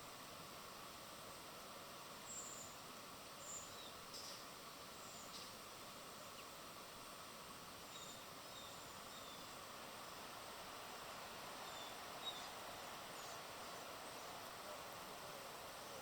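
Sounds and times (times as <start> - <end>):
background hiss: 0.0 - 16.0
small birds chirping: 2.2 - 5.6, 7.8 - 16.0.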